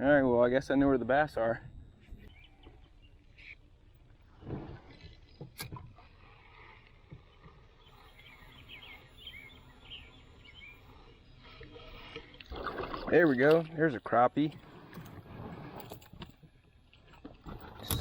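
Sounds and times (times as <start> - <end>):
outdoor background noise: 0.0 - 18.0
birds chirping: 2.0 - 4.2, 4.9 - 14.5.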